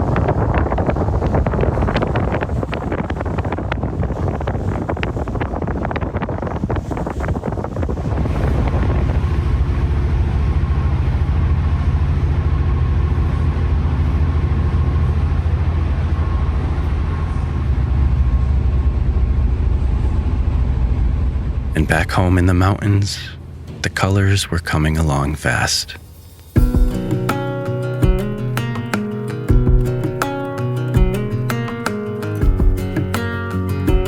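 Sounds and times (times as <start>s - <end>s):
wind buffeting microphone: 0.0s - 22.3s, 26.0s - 34.0s
low engine drone: 7.7s - 34.0s.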